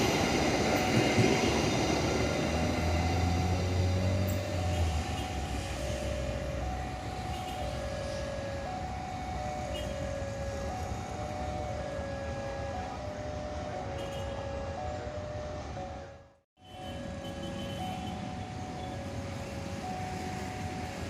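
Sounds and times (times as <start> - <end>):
train rumble: 0.0 - 13.7
two-tone electronic warning alarm: 0.0 - 21.0.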